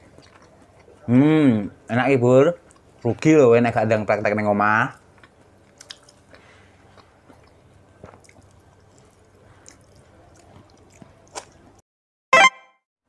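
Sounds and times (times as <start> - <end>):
soft wet chewing: 0.0 - 1.4, 2.4 - 11.8.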